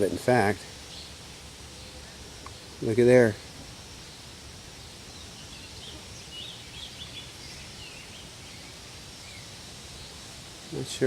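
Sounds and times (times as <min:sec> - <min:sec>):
bird chirping faintly: 0:00.0 - 0:11.0
outdoor background noise: 0:00.0 - 0:11.0.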